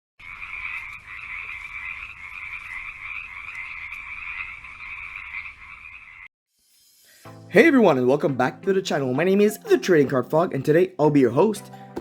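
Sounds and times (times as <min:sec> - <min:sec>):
chorus of frogs calling: 0:00.2 - 0:06.3.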